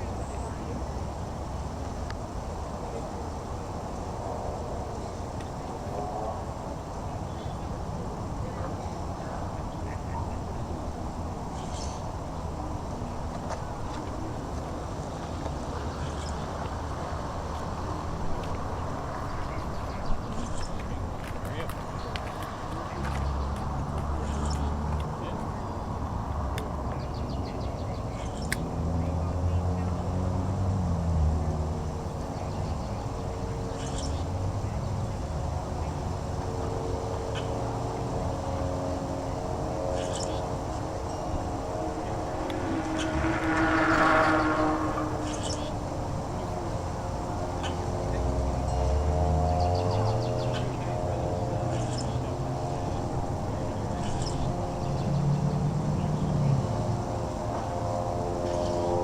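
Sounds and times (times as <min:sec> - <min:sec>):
low engine drone: 0:31.0 - 0:59.0.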